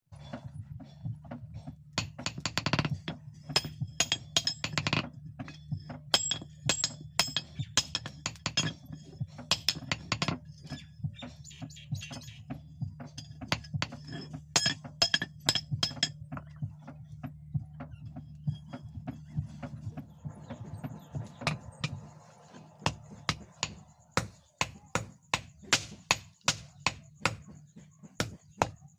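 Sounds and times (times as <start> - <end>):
steady low hum: 0.1 - 28.9
hammer striking steel: 2.0 - 10.8, 13.1 - 16.5, 20.4 - 27.6.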